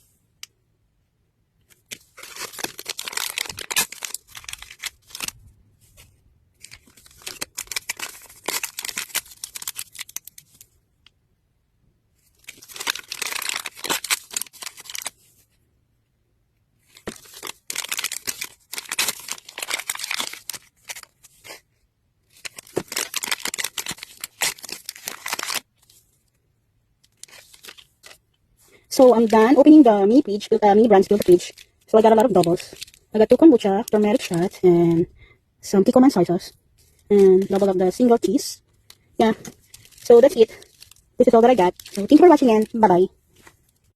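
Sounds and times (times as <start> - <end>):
plastic wrapping tearing and crinkling: 1.7 - 5.4, 6.0 - 10.7, 12.2 - 15.2, 16.8 - 21.6, 22.2 - 26.1, 27.0 - 28.2, 30.8 - 34.6, 36.8 - 43.9.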